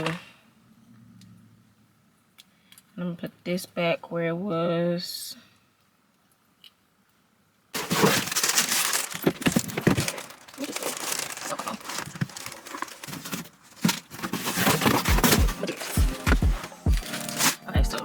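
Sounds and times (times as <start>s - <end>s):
plastic packaging crinkling: 7.8s - 18.0s
deep bass beats of song: 15.1s - 18.0s.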